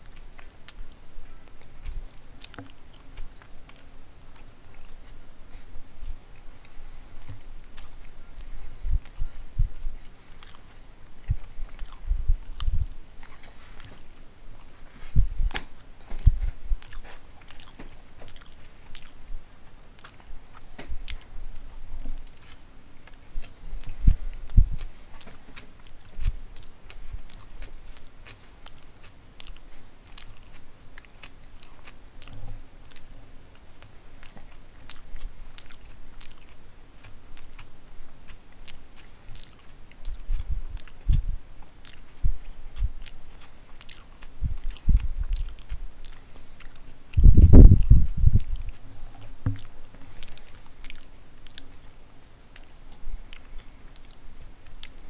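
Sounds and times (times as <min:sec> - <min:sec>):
chewing sandwich: 0:00.0 - 0:55.0
wet mouth clicks: 0:09.8 - 0:19.2, 0:52.6 - 0:55.0.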